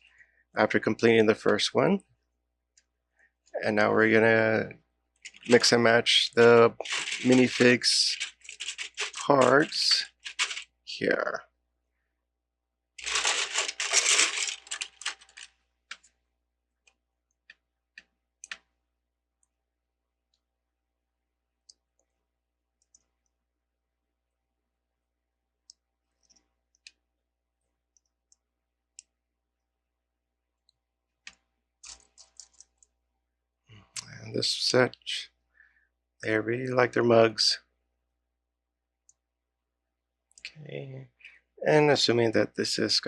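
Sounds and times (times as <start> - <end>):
plastic pieces clicking: 6.8 - 10.6, 13.0 - 16.1
plastic pieces clattering: 6.8 - 10.7, 13.0 - 15.6.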